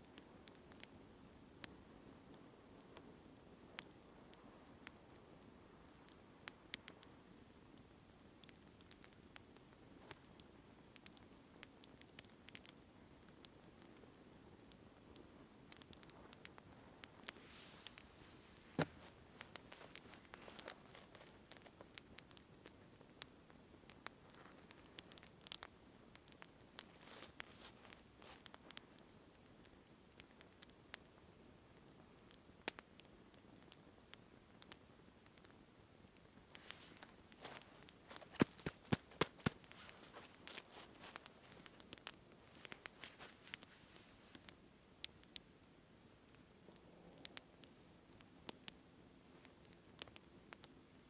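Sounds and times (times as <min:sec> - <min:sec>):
precipitation tapping on tent fabric: 0:18.8 - 0:21.7, 0:36.6 - 0:43.7.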